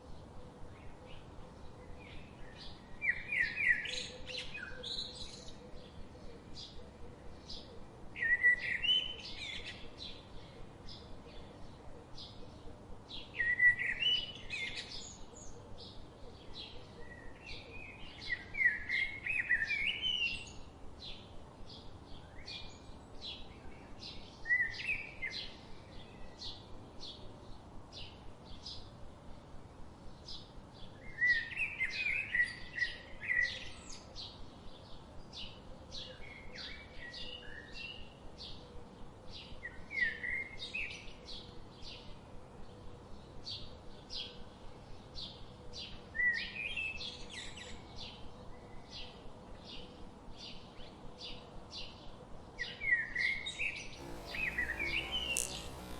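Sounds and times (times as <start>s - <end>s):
songbirds chirping: 0.0s - 55.9s
warbling bird song: 53.9s - 55.9s.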